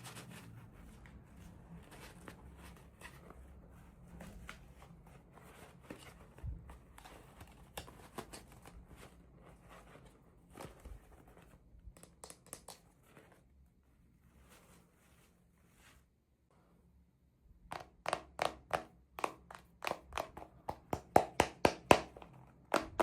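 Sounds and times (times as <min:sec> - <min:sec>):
small clicks and taps: 0:11.9 - 0:12.9.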